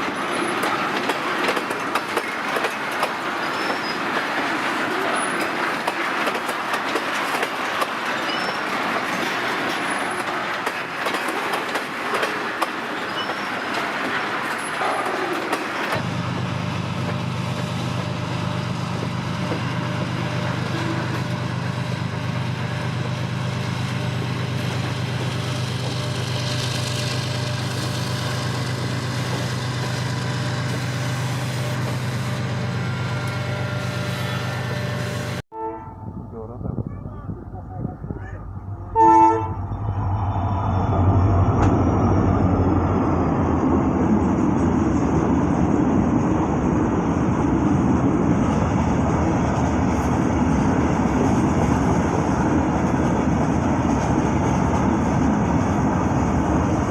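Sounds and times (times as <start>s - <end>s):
freight train wheels on rails: 0.0s - 35.4s, 36.3s - 56.9s
diesel locomotive engine drone: 0.0s - 56.9s.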